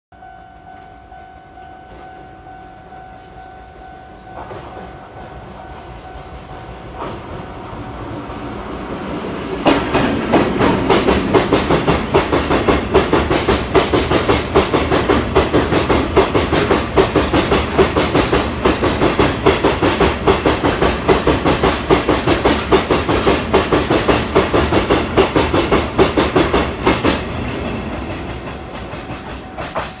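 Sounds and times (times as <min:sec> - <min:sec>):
freight train rumble: 0:00.2 - 0:30.0
wagon wheels clacking over rail joints: 0:09.6 - 0:30.0.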